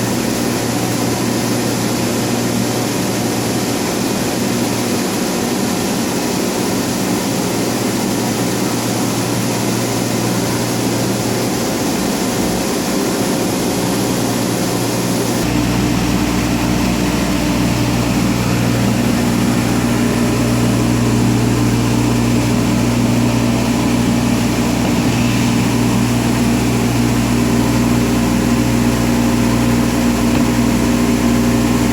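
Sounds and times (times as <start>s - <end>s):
cnc router machine hum: 0.0s - 31.9s
deeper rumble: 15.3s - 31.9s.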